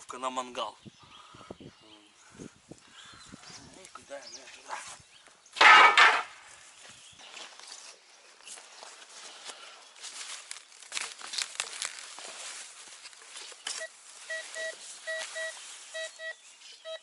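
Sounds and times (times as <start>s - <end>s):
rustling and crackling: 7.4s - 16.2s
metal detector beeping: 13.7s - 17.0s.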